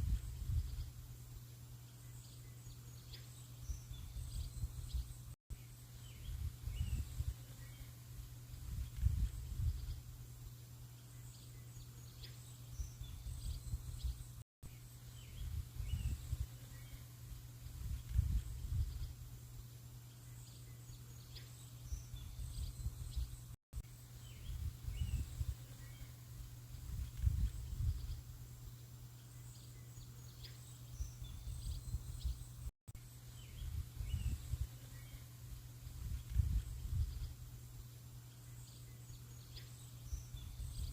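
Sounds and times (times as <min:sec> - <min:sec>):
faint steady hiss: 0:23.8 - 0:32.7
birds chirping: 0:24.0 - 0:32.7.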